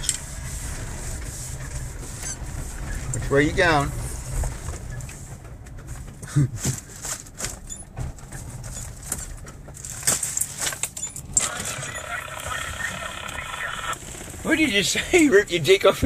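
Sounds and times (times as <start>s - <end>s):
vehicle knocks and rattles: 0.0s - 11.4s
vehicle engine running low: 0.0s - 16.0s.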